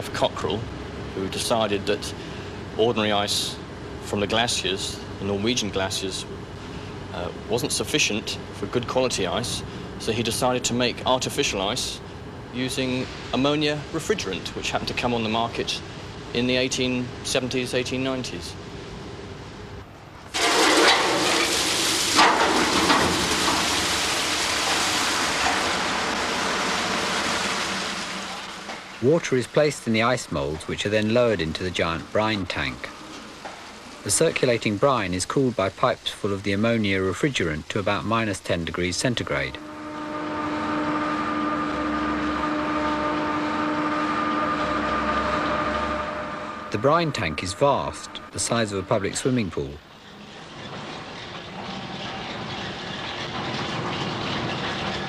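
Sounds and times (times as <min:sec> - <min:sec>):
machinery hum: 0:00.0 - 0:55.0
water rushing into moulds: 0:20.3 - 0:50.2.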